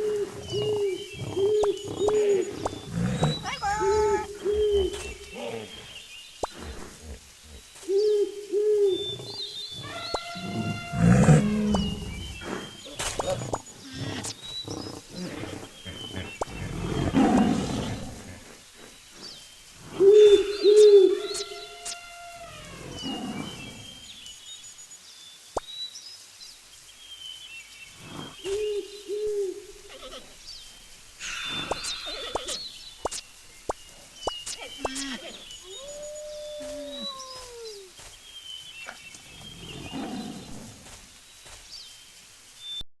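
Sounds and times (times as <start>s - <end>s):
long drawn-out animal call: 6.6s - 12.0s
animal growling: 9.0s - 18.9s
faint bird chirps: 18.9s - 40.7s
animal calls rising and falling: 34.3s - 38.0s.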